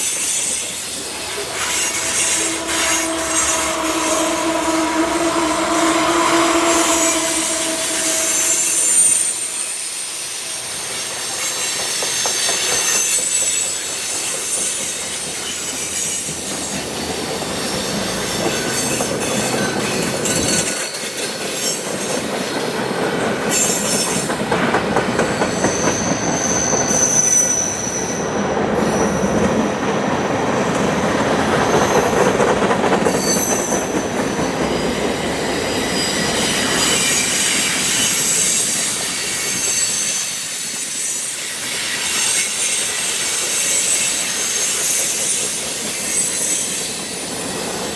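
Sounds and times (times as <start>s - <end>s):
train rumble: 0.0s - 9.8s, 10.7s - 39.8s
train wheels squealing on rail: 0.0s - 47.9s
locomotive horn chord: 1.1s - 9.6s
clicking of train wheels: 10.7s - 47.9s.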